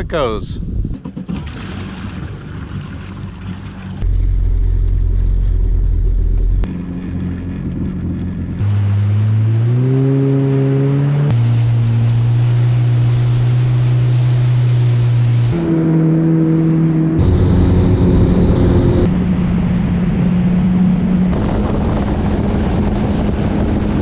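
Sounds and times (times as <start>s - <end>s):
jet ski engine revving: 1.0s - 19.5s.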